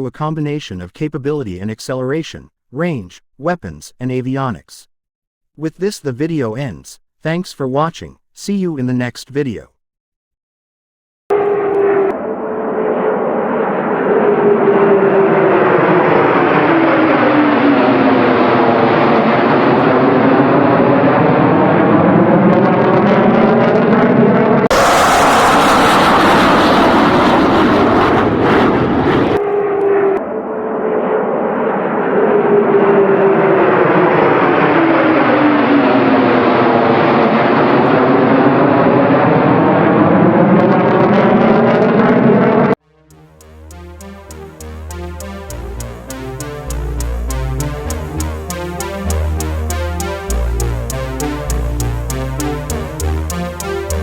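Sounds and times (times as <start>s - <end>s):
jet engines whining roar: 11.3s - 42.8s, 43.4s - 54.0s.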